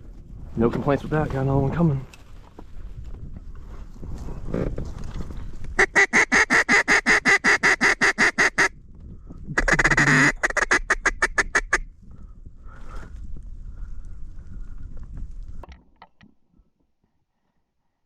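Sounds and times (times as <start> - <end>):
duck call quacks: 5.8 - 8.7, 9.6 - 11.8.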